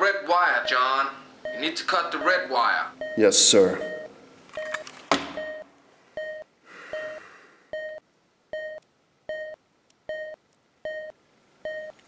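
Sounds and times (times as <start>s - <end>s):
short electronic timer beeps: 3.0s - 4.8s, 5.4s - 5.6s, 6.2s - 7.2s.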